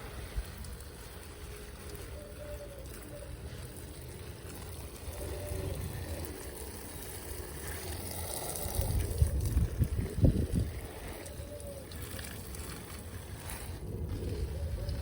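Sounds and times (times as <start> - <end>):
wind buffeting microphone: 8.3 - 15.0.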